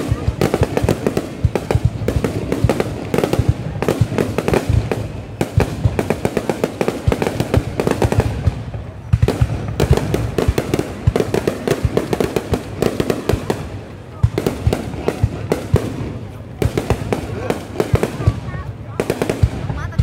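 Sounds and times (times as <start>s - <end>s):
fireworks bangs: 0.0s - 20.0s
fireworks crackling pops: 0.0s - 20.0s.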